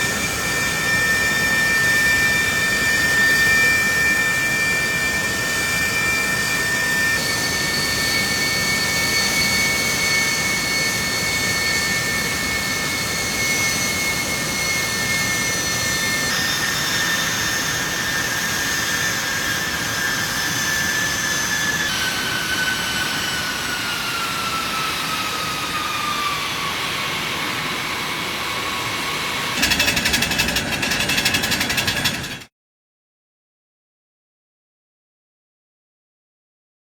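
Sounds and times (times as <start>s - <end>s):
jet engine roaring: 0.0s - 32.5s
engine whine gliding down: 28.6s - 32.5s
rough rattling noise: 29.6s - 32.5s.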